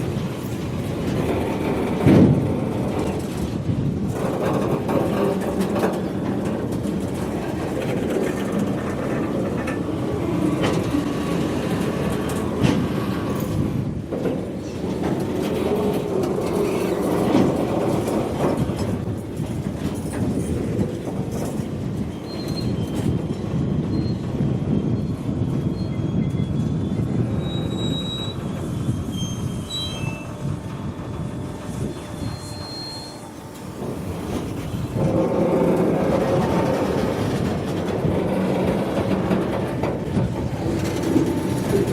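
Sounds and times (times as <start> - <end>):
train wheels rumbling on rails: 0.0 - 41.9
high-pitched wheel squeals: 22.0 - 30.6, 31.4 - 33.8.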